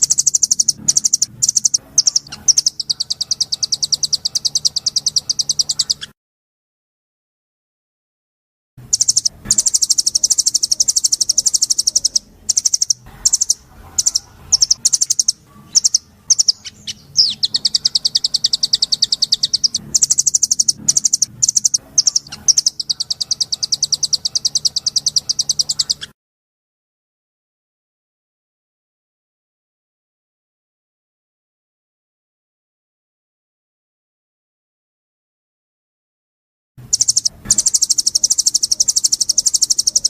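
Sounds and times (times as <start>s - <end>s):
songbird singing rattling trills: 0.0s - 6.1s, 8.8s - 26.1s, 36.8s - 40.0s.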